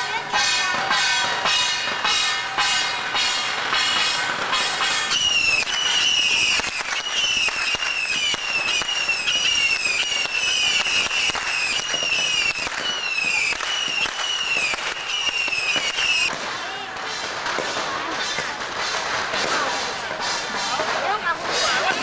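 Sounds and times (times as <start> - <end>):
firecrackers crackling: 0.0 - 22.0
short falling whistles: 5.1 - 16.3.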